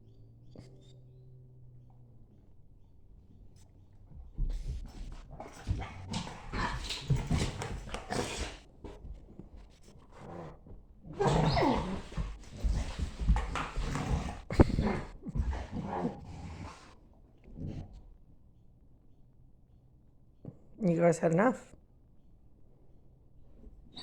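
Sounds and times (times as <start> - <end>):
dogs play fighting noises: 4.2 - 18.0
dog panting: 4.4 - 9.4
dog cry falling in pitch: 11.1 - 12.2
dog whining: 11.1 - 16.8.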